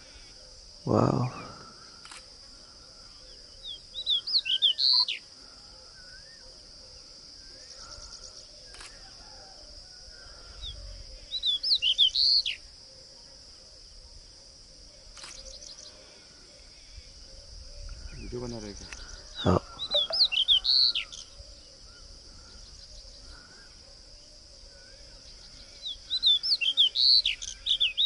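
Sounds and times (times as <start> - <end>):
distant bird calls: 2.5 - 9.3, 18.9 - 28.0
songbird whistling: 19.8 - 21.2.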